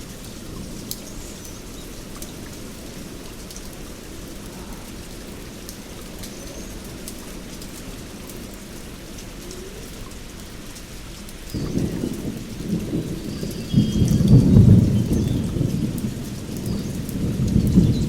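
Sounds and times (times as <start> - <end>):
heavy rain hissing: 0.0 - 18.0
raindrop ticks: 0.0 - 18.0.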